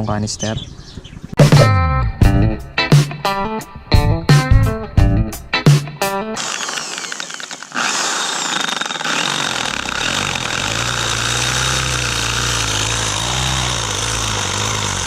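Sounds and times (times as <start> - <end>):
power tool grinding metal: 6.4 - 15.0.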